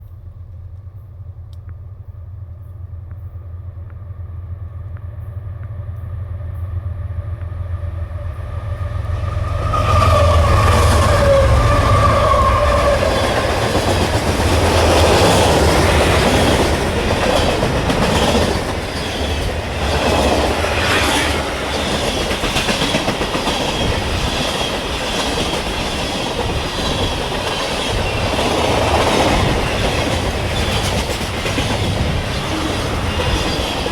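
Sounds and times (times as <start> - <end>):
locomotive rumble: 0.0 - 33.9
freight cars roaring by: 8.4 - 33.9
wheels clacking on rail joints: 9.4 - 33.9.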